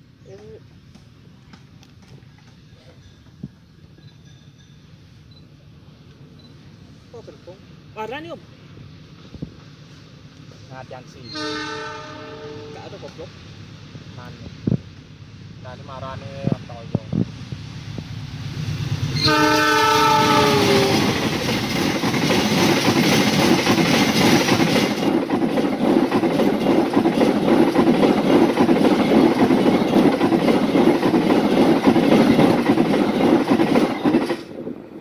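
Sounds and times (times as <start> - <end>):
locomotive horn: 11.3 - 12.9, 19.2 - 21.2
train wheels clattering over rails: 18.7 - 34.7.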